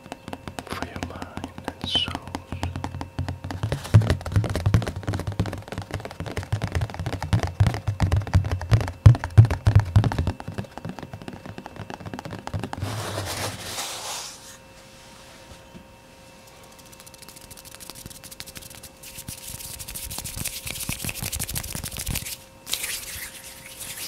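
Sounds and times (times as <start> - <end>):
finger tapping: 0.0 - 12.8
rubbing brushing sound: 12.7 - 15.5, 17.0 - 24.0.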